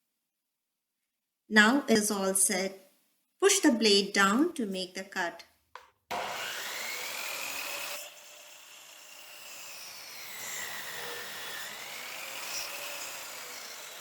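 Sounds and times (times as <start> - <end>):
miter saw cutting wood: 6.1 - 14.0.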